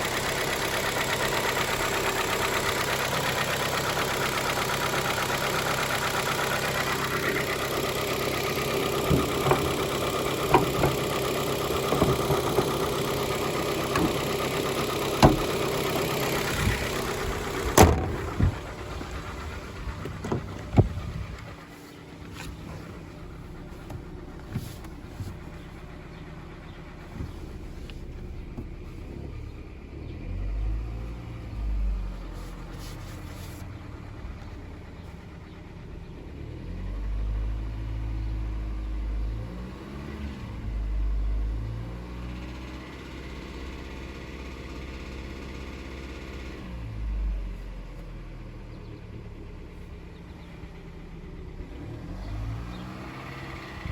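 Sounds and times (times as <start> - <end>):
engine tapping: 0.0 - 37.5
car engine idling and revving: 0.0 - 53.9.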